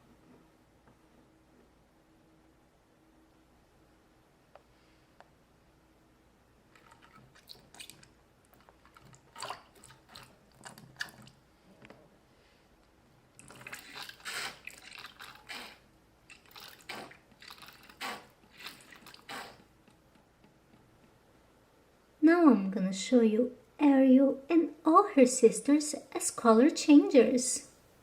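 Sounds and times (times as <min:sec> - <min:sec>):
small water splashes: 0:06.7 - 0:11.4, 0:13.4 - 0:19.6
wet plastic rustling: 0:13.4 - 0:19.6.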